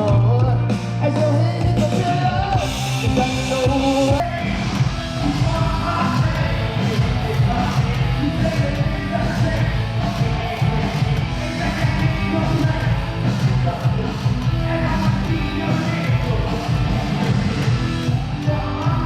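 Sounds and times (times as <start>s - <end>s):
hip-hop music with heavy bass: 0.0s - 19.0s
vocals over beat: 0.0s - 19.0s.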